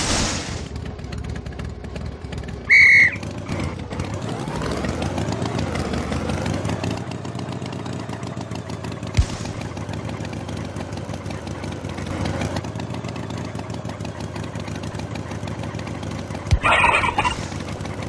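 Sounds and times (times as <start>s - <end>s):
engine running: 0.0s - 18.0s
high whistle-like beep: 2.7s - 3.2s.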